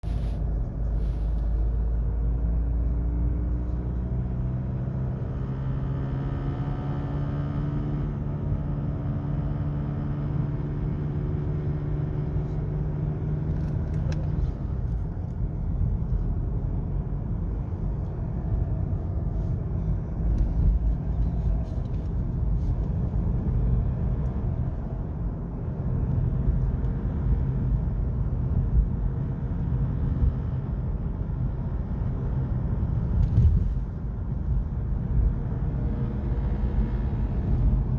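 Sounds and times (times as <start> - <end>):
car engine running: 7.7 - 37.9.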